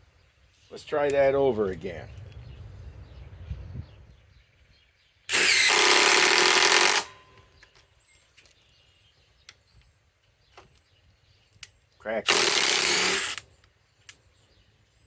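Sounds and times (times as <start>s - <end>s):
impact driver driving screw into wood: 5.3s - 7.2s, 12.3s - 13.4s.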